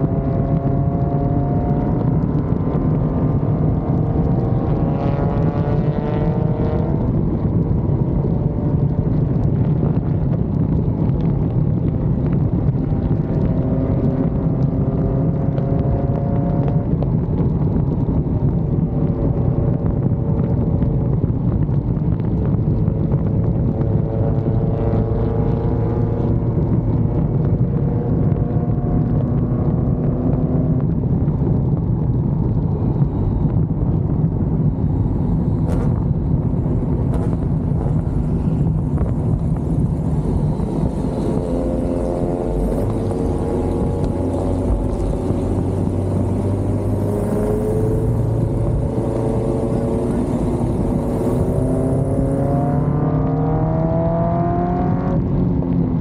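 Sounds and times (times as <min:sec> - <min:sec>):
sports car engine running: 0:00.0 - 0:56.0
wind and road noise: 0:00.0 - 0:56.0.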